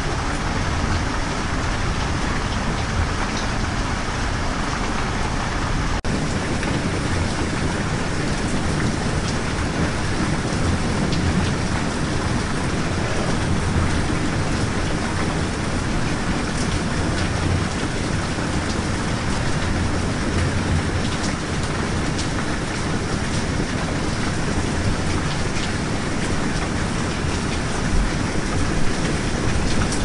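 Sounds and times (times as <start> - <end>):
rain falling: 0.0 - 30.0.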